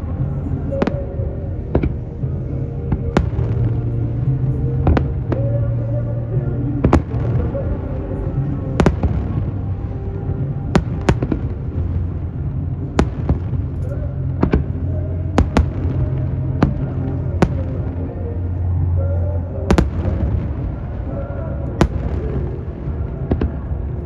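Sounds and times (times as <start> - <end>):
background music: 0.0 - 24.0
fireworks bursting bangs: 10.7 - 12.2, 12.9 - 18.0, 19.7 - 21.2, 21.8 - 24.0.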